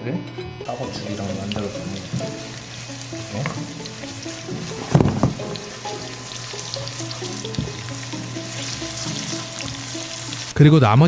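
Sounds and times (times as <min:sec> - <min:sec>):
background music: 0:00.0 - 0:11.0
vegetables sizzling in hot oil: 0:00.7 - 0:10.6
wooden spoon stirring: 0:01.2 - 0:10.5
thump: 0:04.5 - 0:05.6.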